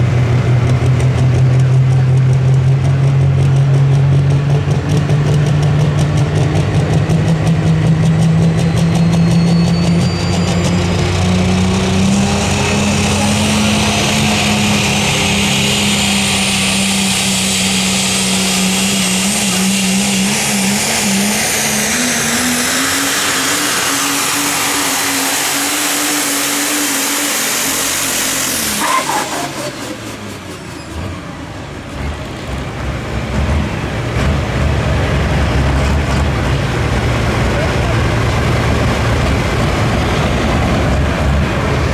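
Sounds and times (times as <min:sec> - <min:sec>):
diesel engine running under load: 0:00.0 - 0:41.9
high whistle: 0:08.6 - 0:11.4.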